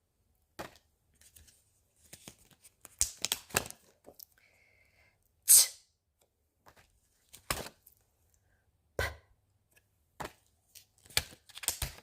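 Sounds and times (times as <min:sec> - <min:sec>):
flashcards tapping and rustling: 0:00.5 - 0:04.2, 0:06.6 - 0:08.0, 0:09.8 - 0:12.0.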